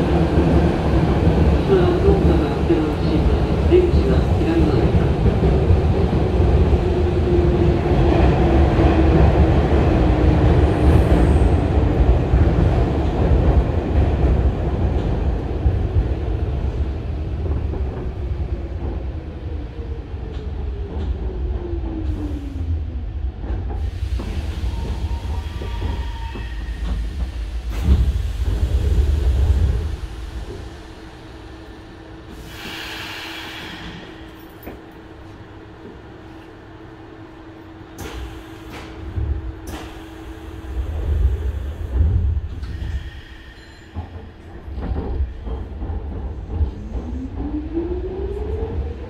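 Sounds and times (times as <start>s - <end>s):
train interior running noise: 0.0s - 49.0s
train doors sliding open: 38.0s - 47.2s.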